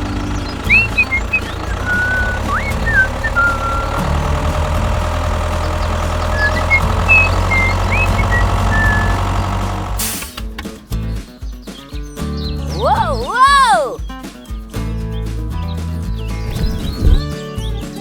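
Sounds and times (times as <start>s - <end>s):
vehicle engine running: 0.0s - 10.5s, 16.2s - 17.3s
high sliding whistles: 0.5s - 4.2s, 5.8s - 9.4s.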